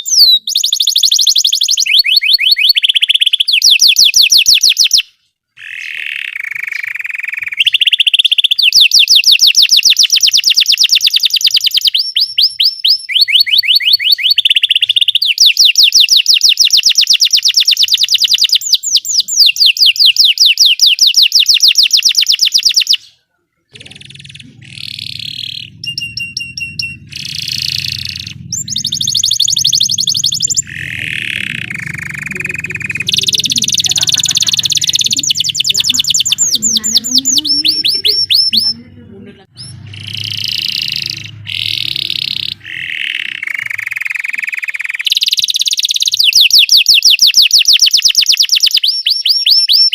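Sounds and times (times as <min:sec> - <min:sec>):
canary singing trills: 0:00.0 - 0:49.9
low steady hum: 0:23.7 - 0:43.0.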